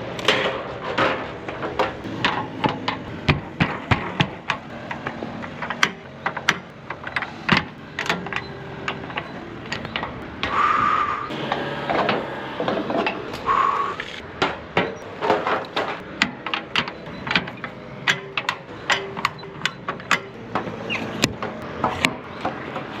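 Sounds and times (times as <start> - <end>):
short steady tone: 2.0 - 12.8, 17.0 - 22.4.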